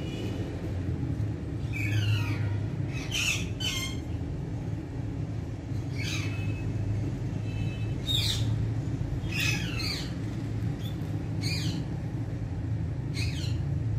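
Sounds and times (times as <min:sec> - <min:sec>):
steady low hum: 0:00.0 - 0:13.9
parrot squawks: 0:01.7 - 0:04.1.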